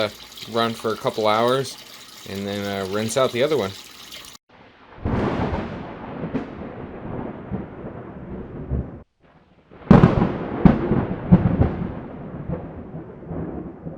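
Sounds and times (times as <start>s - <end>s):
water churning in a bucket: 0.0s - 4.4s.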